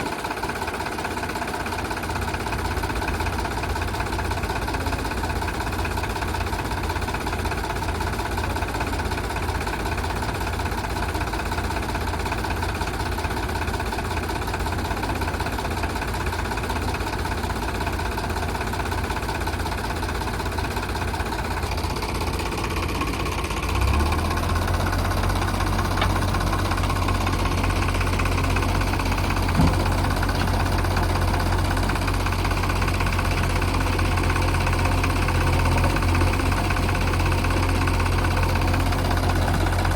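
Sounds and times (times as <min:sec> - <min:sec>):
heavy diesel engine running: 0:00.0 - 0:39.9
short knock: 0:29.5 - 0:30.2.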